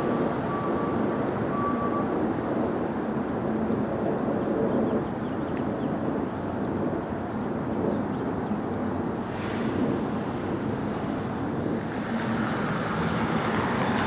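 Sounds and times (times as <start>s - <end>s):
garbage truck engine rumbling: 10.0s - 14.0s.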